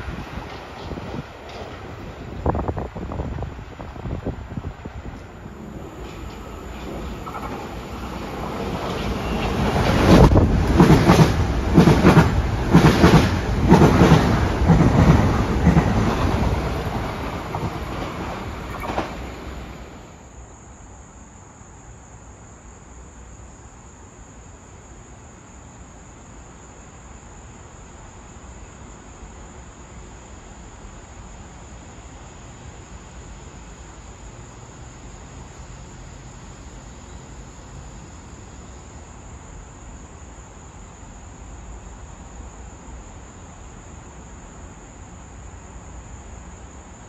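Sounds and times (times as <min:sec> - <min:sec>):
wheels clacking over rail joints: 0:00.0 - 0:04.0, 0:04.8 - 0:20.1
train passing at speed: 0:00.0 - 0:22.0, 0:24.8 - 0:47.0
high insect chirr: 0:00.0 - 0:47.0.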